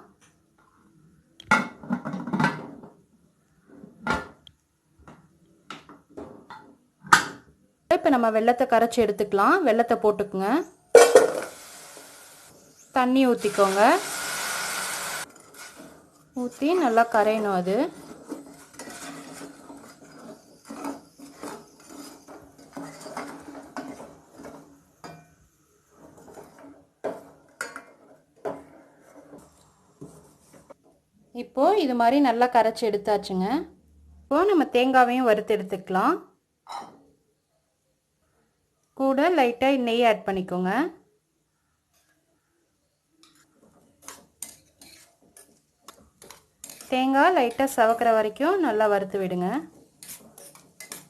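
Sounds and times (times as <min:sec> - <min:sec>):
spoon clinking and scraping pan: 0:16.5 - 0:25.3, 0:43.2 - 0:48.0, 0:50.0 - 0:51.0.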